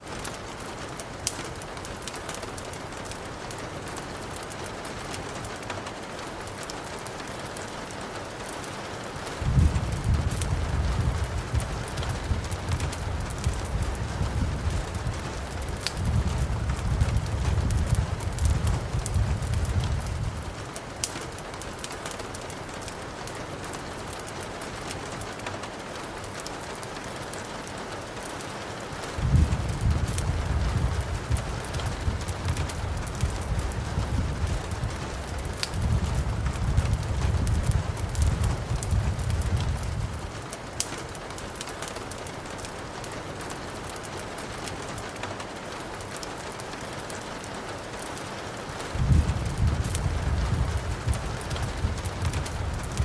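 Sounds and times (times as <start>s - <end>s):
fire crackling and popping: 0.0s - 53.0s
rain hiss: 0.0s - 53.0s.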